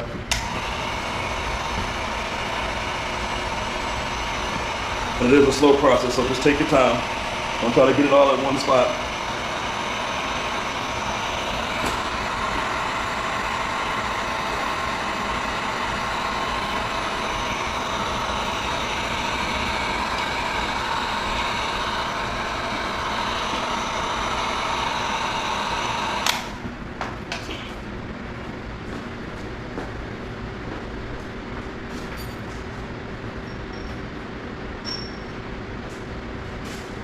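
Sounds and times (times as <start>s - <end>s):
hot-air blower running: 0.0s - 34.8s
blower switch click: 0.3s - 0.7s, 25.8s - 26.6s.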